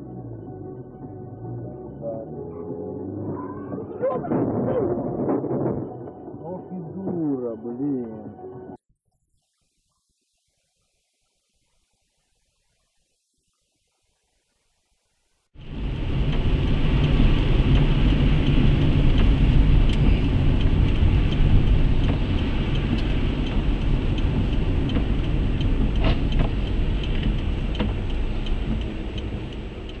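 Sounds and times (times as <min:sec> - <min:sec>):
vehicle engine and road rumble: 0:00.0 - 0:08.8, 0:15.6 - 0:30.0
small ticks and clicks: 0:16.3 - 0:30.0.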